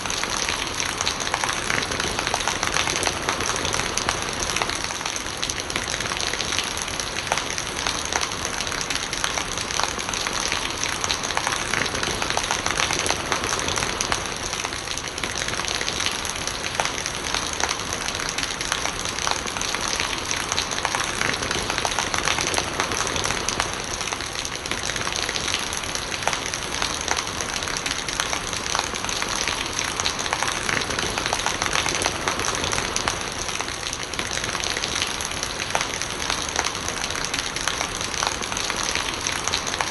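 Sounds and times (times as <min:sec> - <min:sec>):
gurgling rainwater: 0:00.0 - 0:39.9
steady rain falling: 0:00.0 - 0:39.9.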